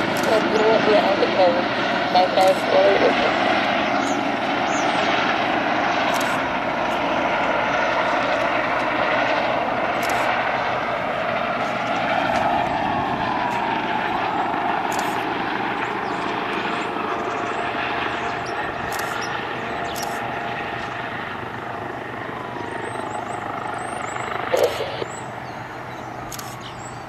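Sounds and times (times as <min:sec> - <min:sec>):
helicopter rotor and engine noise: 0:00.0 - 0:27.0.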